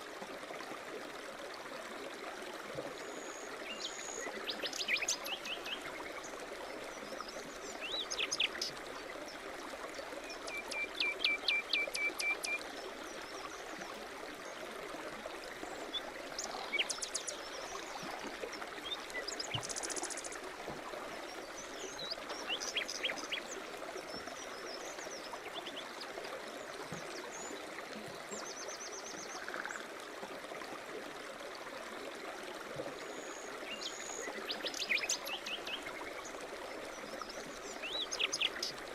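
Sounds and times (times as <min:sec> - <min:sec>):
stream babbling: 0:00.0 - 0:38.9
songbirds chirping and trilling: 0:21.4 - 0:23.6.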